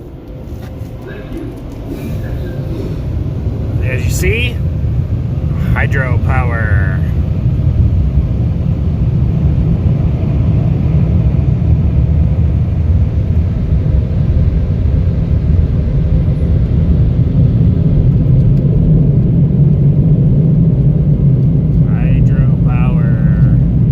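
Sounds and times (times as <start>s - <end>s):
car wash blow dryer roaring: 0.0s - 23.9s.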